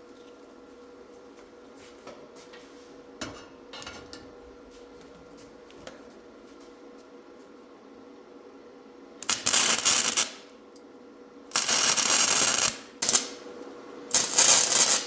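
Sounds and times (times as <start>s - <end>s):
arc welder crackling: 9.2s - 10.6s, 11.5s - 15.0s.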